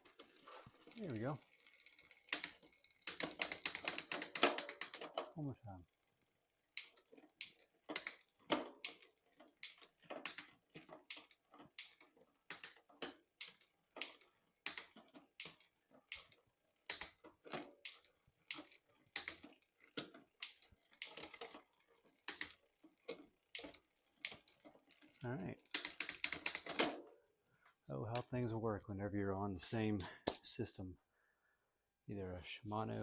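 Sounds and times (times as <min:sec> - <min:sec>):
bicycle gears clicking: 0:00.0 - 0:27.0.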